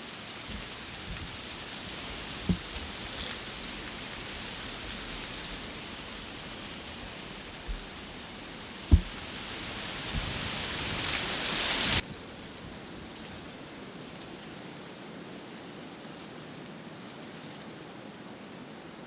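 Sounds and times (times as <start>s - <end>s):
faint steady hiss: 0.0s - 15.2s
sharp thump: 8.9s - 9.3s.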